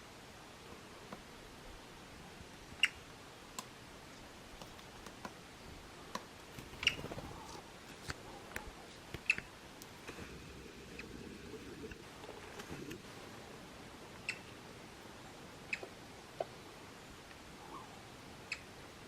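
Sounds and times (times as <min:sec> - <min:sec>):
woodpecker ticking: 0:02.8 - 0:05.4, 0:06.1 - 0:10.0, 0:14.2 - 0:14.6, 0:15.6 - 0:16.6, 0:18.4 - 0:18.8.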